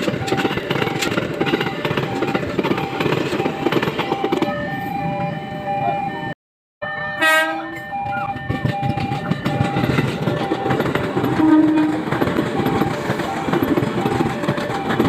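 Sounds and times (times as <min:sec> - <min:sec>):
train rumbling through station: 0:00.0 - 0:15.0
train horn: 0:07.1 - 0:07.9, 0:11.2 - 0:12.1.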